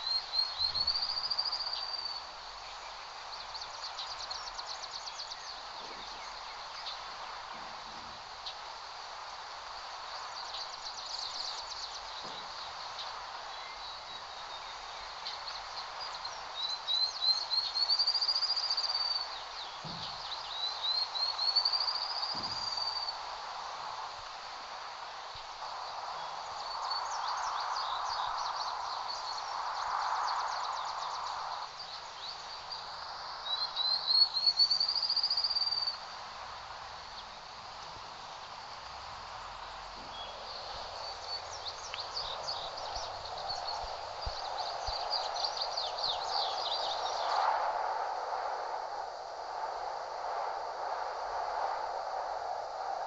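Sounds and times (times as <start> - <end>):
small bird singing: 0.0 - 7.7, 10.1 - 23.2, 25.7 - 36.0, 39.3 - 47.4
steady hiss: 0.0 - 53.0.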